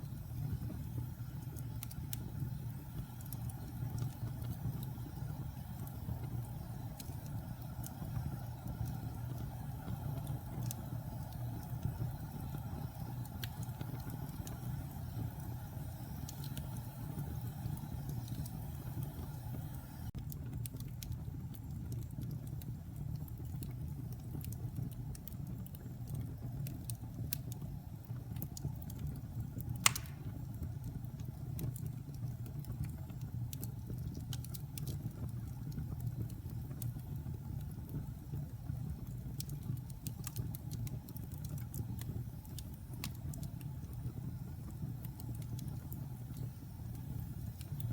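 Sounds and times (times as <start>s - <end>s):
log fire crackling: 0.0s - 47.9s
loud pop from fire: 29.8s - 30.4s.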